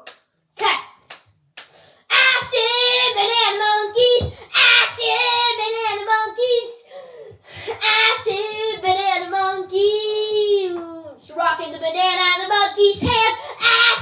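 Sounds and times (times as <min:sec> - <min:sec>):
child singing solo: 0:07.8 - 0:14.0.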